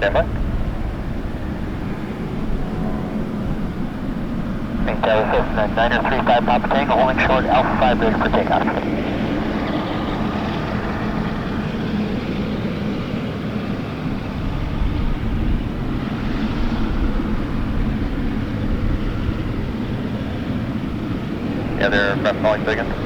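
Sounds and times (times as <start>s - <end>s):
low hum: 0.0s - 12.3s
jet engines droning: 0.0s - 23.0s.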